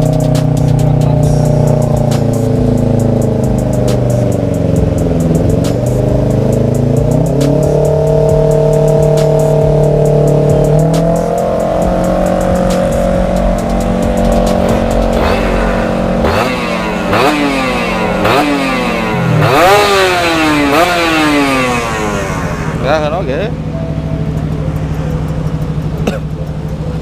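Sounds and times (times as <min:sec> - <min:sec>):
two-stroke motorcycle engine revving: 0:00.0 - 0:27.0.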